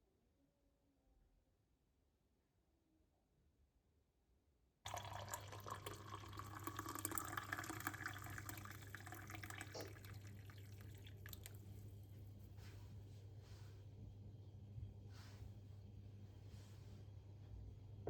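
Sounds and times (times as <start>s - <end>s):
water running into sink: 4.9s - 11.6s.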